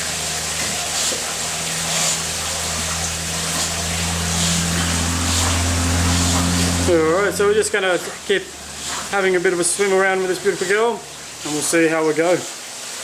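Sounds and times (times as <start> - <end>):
moving water: 0.0 - 13.0
pool pump humming: 0.0 - 13.0
low tone: 0.1 - 8.7.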